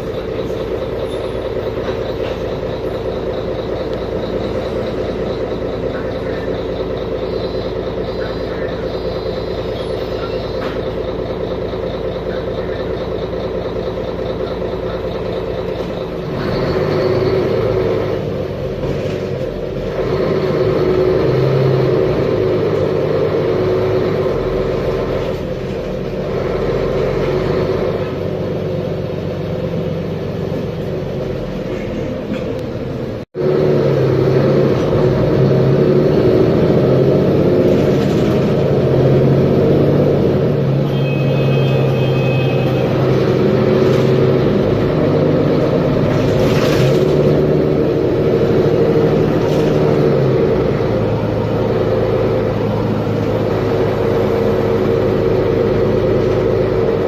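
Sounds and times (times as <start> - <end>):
diesel bus engine running: 0.0 - 57.0.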